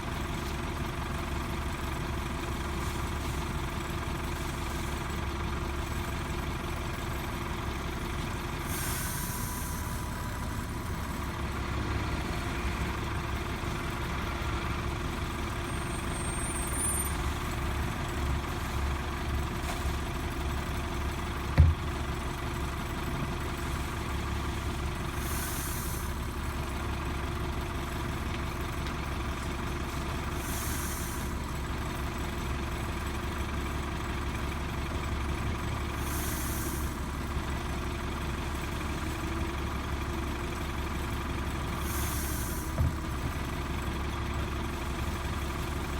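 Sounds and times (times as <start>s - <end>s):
garbage truck engine running: 0.0s - 45.9s
short air hisses: 8.6s - 10.4s, 25.1s - 26.3s, 30.4s - 31.4s, 36.0s - 37.1s, 41.8s - 43.2s
sharp thump: 21.6s - 22.0s.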